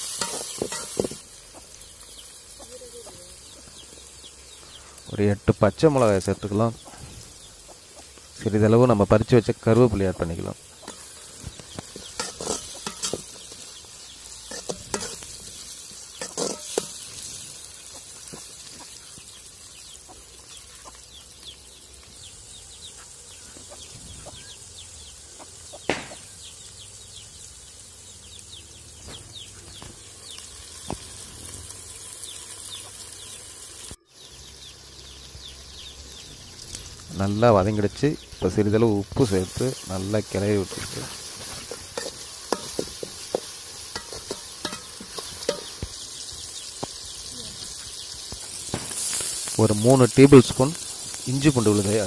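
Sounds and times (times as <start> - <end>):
metal spatula scraping pot: 0.0 - 1.2, 10.8 - 13.6, 14.4 - 17.3, 40.7 - 45.8
vegetables sizzling in oil: 0.0 - 52.0.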